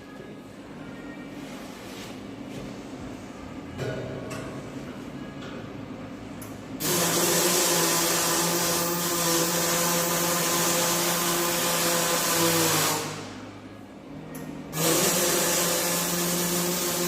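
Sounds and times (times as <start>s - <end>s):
welding hiss with hum: 6.8s - 13.3s, 14.8s - 17.0s.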